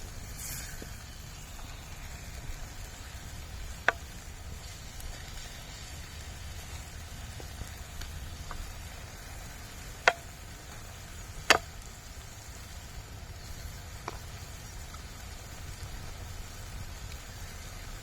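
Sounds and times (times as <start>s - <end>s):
low background rumble: 0.0s - 18.0s
faint ticks: 6.6s - 12.4s, 16.9s - 17.8s.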